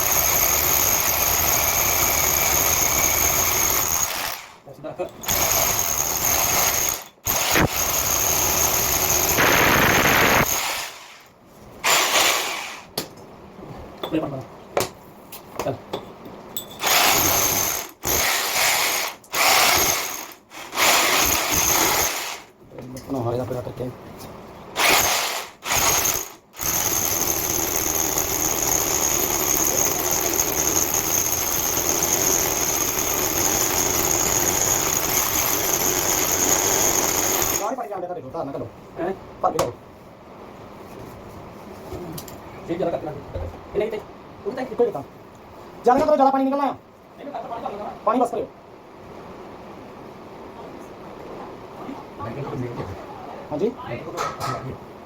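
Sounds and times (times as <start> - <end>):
electric drill grinding into masonry: 0.0 - 4.6, 5.2 - 12.9, 16.8 - 22.5, 24.8 - 37.8.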